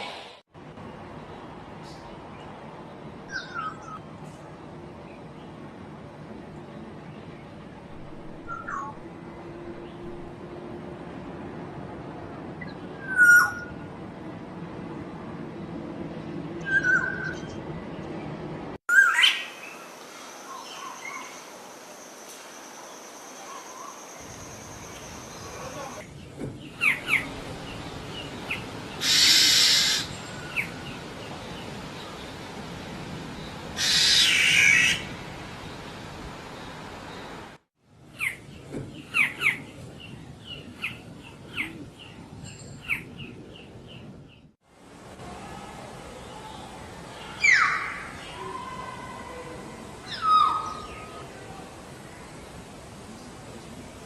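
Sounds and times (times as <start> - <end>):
bird harsh raspy calls: 28.5 - 30.7, 33.8 - 35.1.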